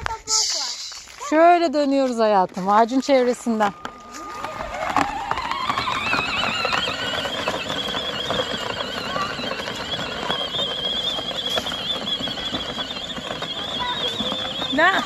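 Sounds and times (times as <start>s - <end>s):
toy car electric motors whining: 3.1s - 15.0s.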